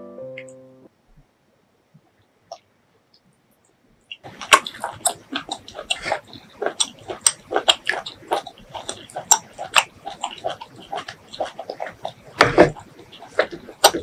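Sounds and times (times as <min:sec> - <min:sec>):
wet chewing and smacking: 0:04.1 - 0:14.0.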